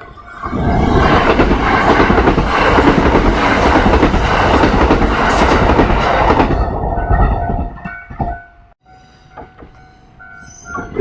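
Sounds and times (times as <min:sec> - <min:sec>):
train wheels clattering: 0:00.0 - 0:10.6.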